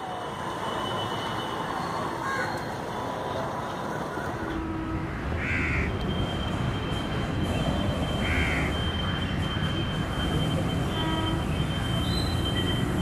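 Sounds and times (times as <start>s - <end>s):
approaching train rumble: 0.0s - 13.0s
crow cawing: 2.2s - 2.6s, 5.1s - 5.9s, 8.2s - 8.7s.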